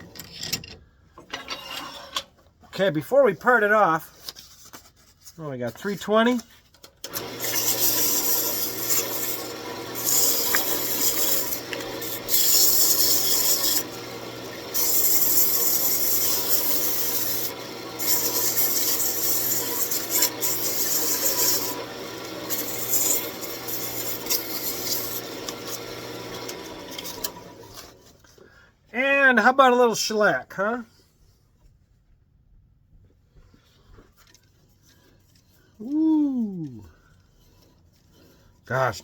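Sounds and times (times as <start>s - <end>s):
lathe motor humming: 7.1s - 27.9s
sandpaper hissing on spinning wood: 7.3s - 14.0s, 14.7s - 25.4s.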